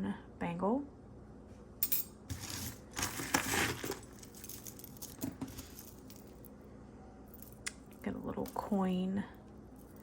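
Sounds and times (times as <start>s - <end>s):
metal jewelry clinking: 1.8s - 6.5s.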